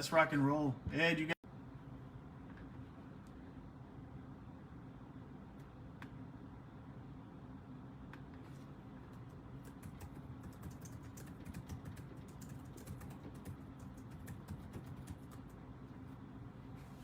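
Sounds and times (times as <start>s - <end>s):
steady low hum: 0.0s - 17.0s
typing on a computer keyboard: 9.6s - 15.6s.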